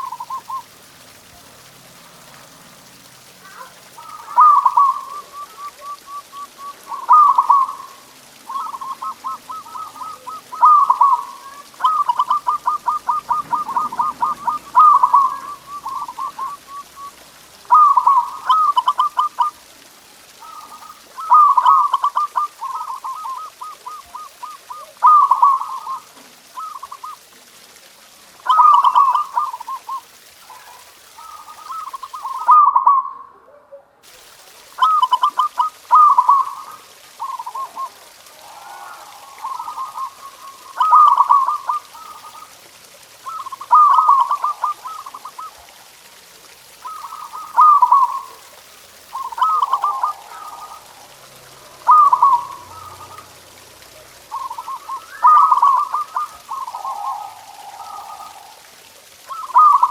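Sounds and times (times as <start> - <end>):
dove cooing: 0.0 - 0.7, 3.4 - 27.8, 28.4 - 33.8, 34.7 - 42.6, 43.2 - 59.9.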